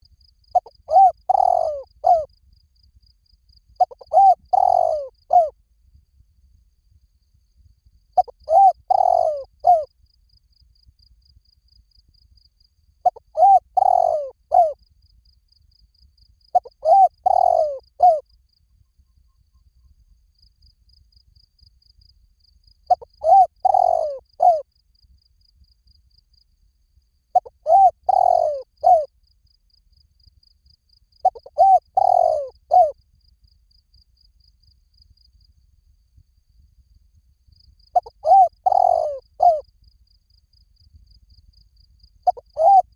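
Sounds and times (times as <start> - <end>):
dove cooing: 0.6 - 2.3, 3.8 - 5.6, 8.2 - 9.9, 13.0 - 14.8, 16.6 - 18.2, 22.9 - 24.6, 27.4 - 29.1, 31.2 - 33.0, 38.0 - 39.6, 42.3 - 42.9.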